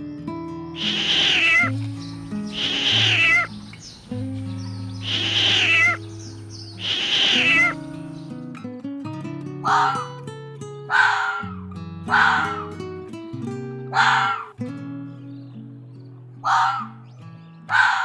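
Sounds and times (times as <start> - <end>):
cat meowing: 0.8 - 8.1.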